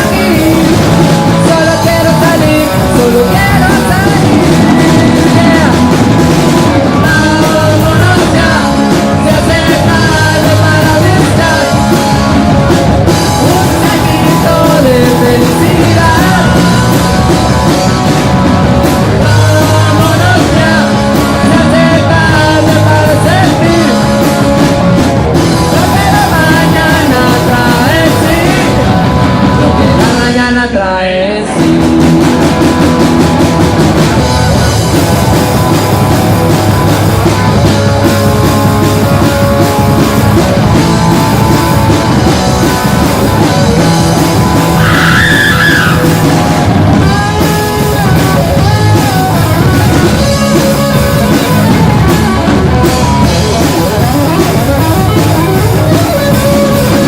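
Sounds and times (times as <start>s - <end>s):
drum kit: 0.0s - 30.8s, 31.4s - 57.0s
bass guitar: 0.0s - 57.0s
electric guitars: 0.0s - 57.0s.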